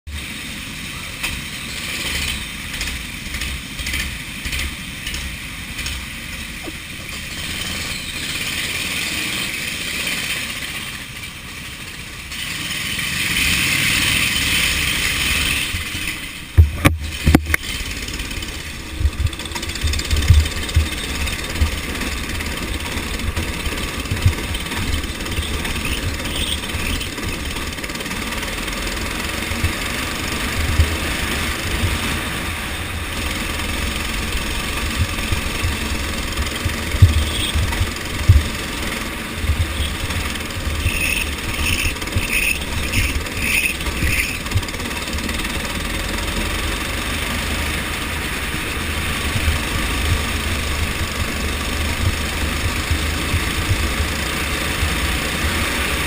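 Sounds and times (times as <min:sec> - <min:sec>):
go-kart engine rumbling: 0:00.1 - 0:56.0
sharp thumps: 0:34.2 - 0:44.7
short high chirps: 0:37.0 - 0:37.8, 0:39.6 - 0:44.4.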